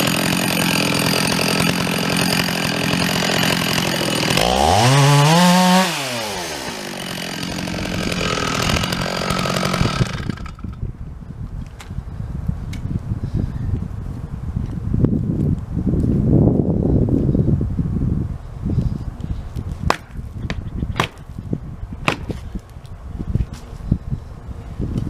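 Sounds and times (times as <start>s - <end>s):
chainsaw running: 0.0s - 10.8s.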